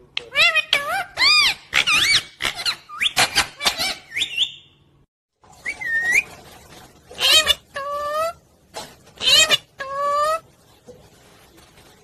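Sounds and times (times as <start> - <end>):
parrot chirping: 0.2 - 4.8, 5.6 - 6.3, 7.2 - 8.4, 9.2 - 10.4.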